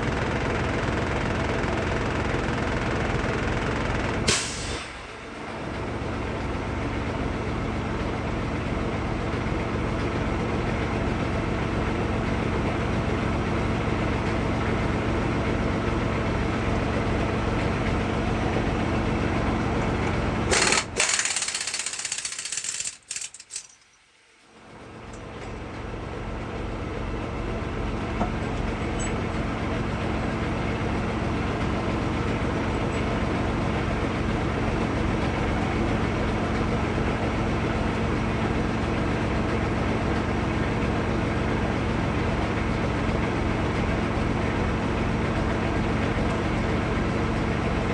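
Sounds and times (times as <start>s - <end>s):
air impact wrench hammering: 20.5s - 23.8s.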